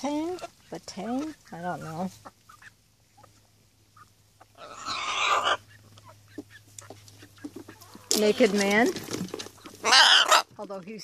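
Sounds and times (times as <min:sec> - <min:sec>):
bird squawk: 0:04.0 - 0:08.2, 0:09.7 - 0:10.5.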